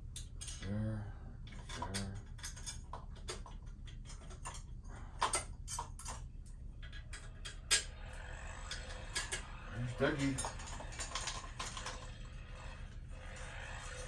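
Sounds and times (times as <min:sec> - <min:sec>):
tools clicking and tapping: 0:01.5 - 0:07.9, 0:08.6 - 0:09.5.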